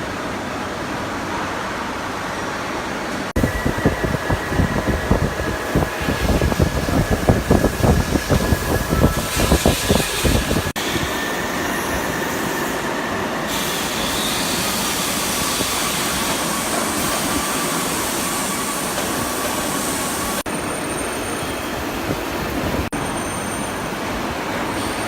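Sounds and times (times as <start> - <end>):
hydraulic press hum and hiss: 3.4 - 22.8.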